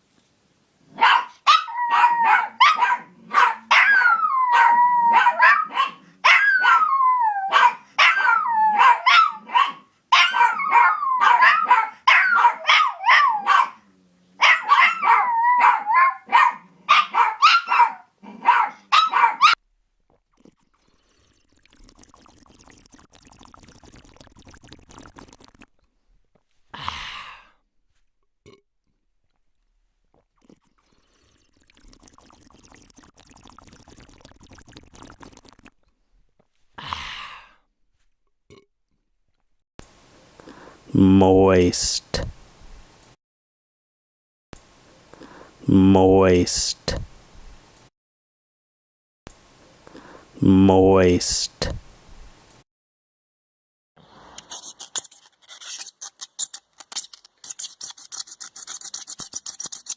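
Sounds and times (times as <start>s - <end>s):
dog yapping: 1.0s - 13.8s, 14.4s - 19.6s.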